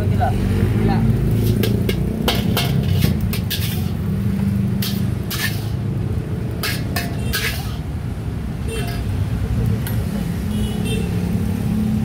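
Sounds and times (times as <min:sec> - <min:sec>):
metal spatula scraping a wok: 0:01.2 - 0:08.0, 0:08.7 - 0:09.3
rice frying: 0:01.2 - 0:10.0.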